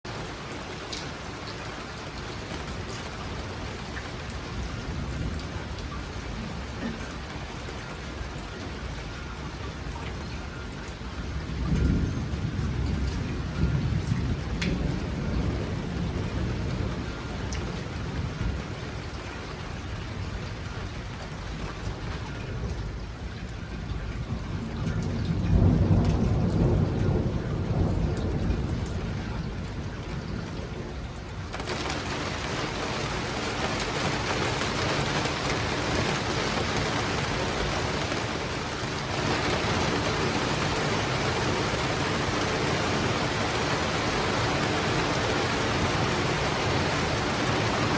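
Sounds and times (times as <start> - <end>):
raindrops pattering on surfaces: 0.1 - 47.9
low rumble of thunder: 2.0 - 47.9
heavy rain hissing: 31.5 - 47.9.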